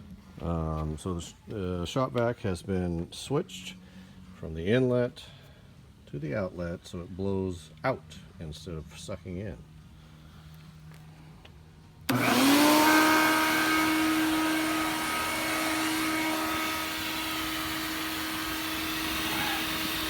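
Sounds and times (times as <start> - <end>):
shop vac motor whine: 12.0 - 20.0.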